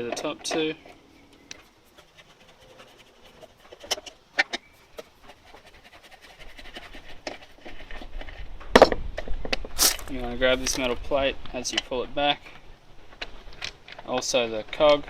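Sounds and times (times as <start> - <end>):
metal clicks and scrapes: 0.0 - 5.9.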